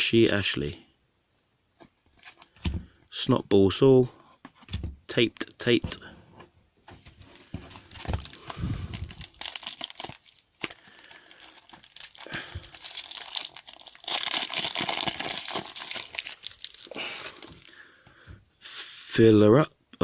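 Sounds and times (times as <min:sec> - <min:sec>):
wrapper tearing and crinkling: 0:07.2 - 0:17.8.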